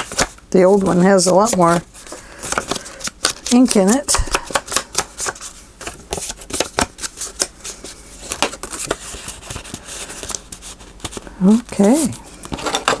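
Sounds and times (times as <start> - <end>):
paper clicks and scratches: 0.0 - 7.5
paper rustle: 0.0 - 13.0.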